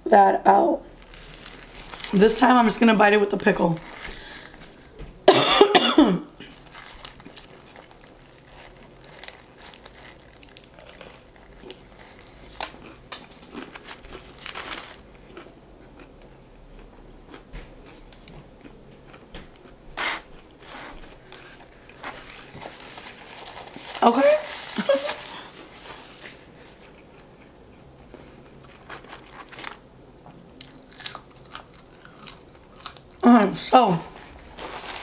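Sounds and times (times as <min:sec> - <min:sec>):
paper wrapper rustling: 0:01.0 - 0:04.8, 0:06.5 - 0:15.1, 0:20.7 - 0:26.8, 0:28.6 - 0:29.8, 0:34.1 - 0:35.0
close-up chewing: 0:06.5 - 0:19.8, 0:24.6 - 0:33.2.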